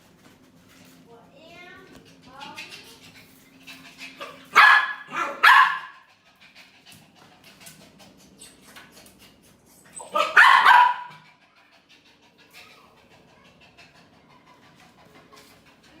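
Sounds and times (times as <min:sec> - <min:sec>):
dog barking: 0:04.2 - 0:06.1, 0:10.1 - 0:11.2.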